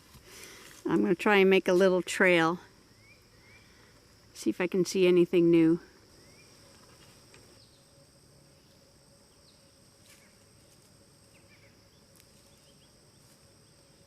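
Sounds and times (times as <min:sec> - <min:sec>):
crickets droning: 0:00.0 - 0:14.0
faint bird chirps: 0:02.9 - 0:03.9.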